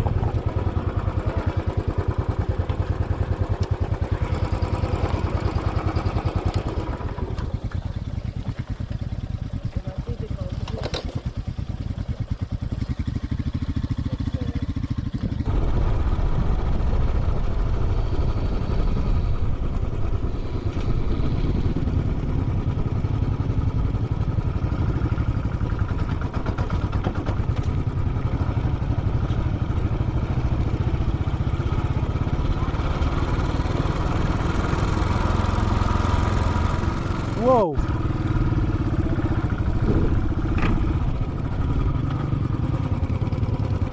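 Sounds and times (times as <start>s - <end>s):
motorcycle engine thumping: 39.0s - 42.4s.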